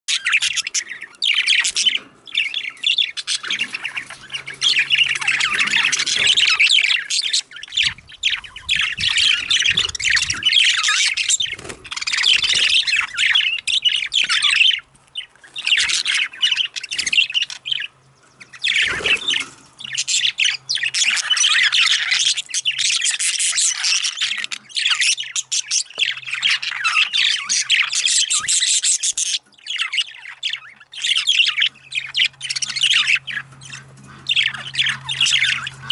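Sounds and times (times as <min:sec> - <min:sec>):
budgerigars chattering and squawking: 0:00.1 - 0:35.9.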